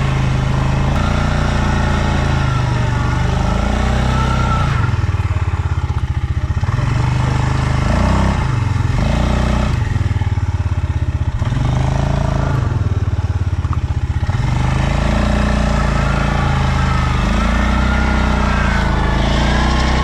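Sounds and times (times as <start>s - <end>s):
quad bike engine revving: 0.0s - 20.0s.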